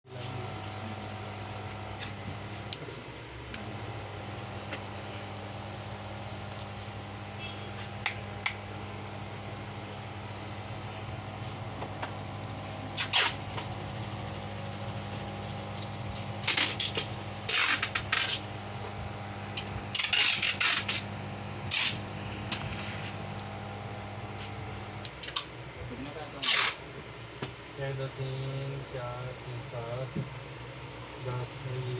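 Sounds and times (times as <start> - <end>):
pump compressor humming: 0.1 - 28.6
sharp clicks and knocks: 8.0 - 8.7.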